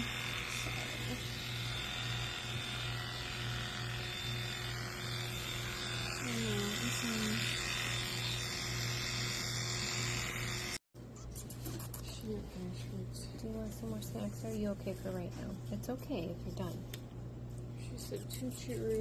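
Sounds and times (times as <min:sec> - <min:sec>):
low electric buzz: 0:00.0 - 0:10.8.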